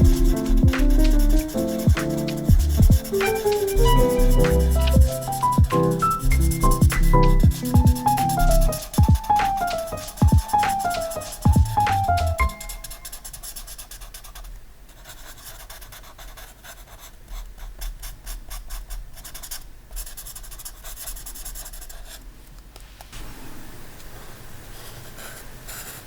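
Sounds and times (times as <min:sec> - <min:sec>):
pen scratching on paper: 0:00.0 - 0:22.2, 0:24.9 - 0:26.0
music note: 0:03.1 - 0:08.8, 0:11.6 - 0:13.0.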